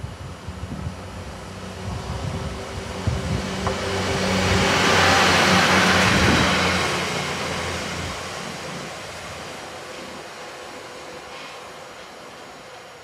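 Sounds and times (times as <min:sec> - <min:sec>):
train engine hum: 0:00.0 - 0:13.0
train wheels rumbling on rail: 0:00.0 - 0:13.0.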